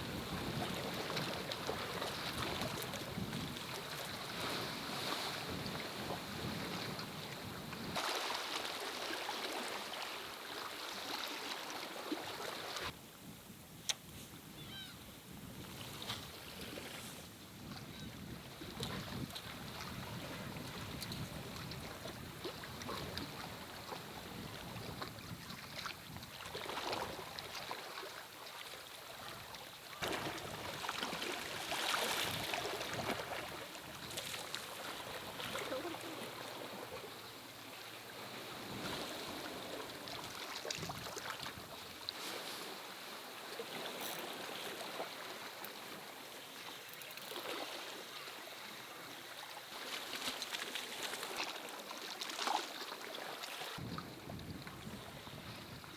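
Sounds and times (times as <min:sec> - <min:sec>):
wind on microphone: 0:00.0 - 0:08.0, 0:12.8 - 0:27.6, 0:38.2 - 0:42.0, 0:53.8 - 0:55.9
sea waves washing against rocks: 0:30.0 - 0:37.0.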